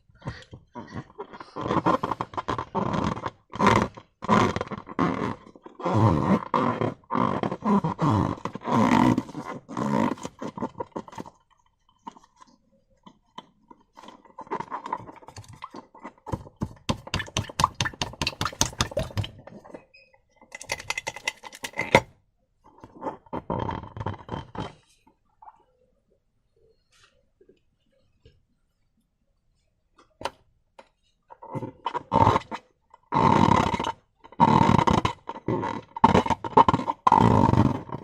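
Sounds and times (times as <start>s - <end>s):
rubber balloons stretching: 0.1s - 11.4s, 13.9s - 19.8s, 22.8s - 24.9s, 31.4s - 38.0s
slime squelching: 14.0s - 19.8s.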